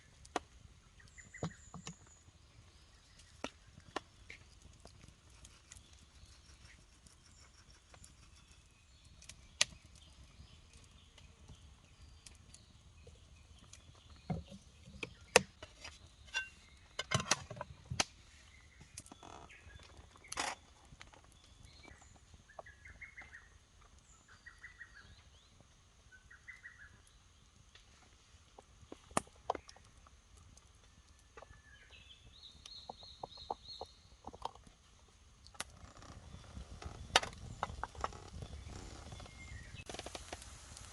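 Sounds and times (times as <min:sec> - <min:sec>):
sharp clicks and knocks: 0:14.3 - 0:18.1.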